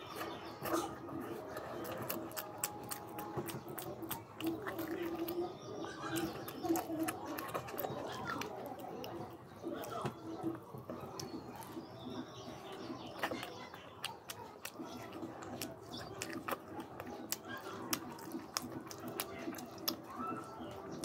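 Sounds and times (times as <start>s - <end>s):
close-up chewing: 0.0s - 21.0s
wet mouth smacks: 13.1s - 20.4s.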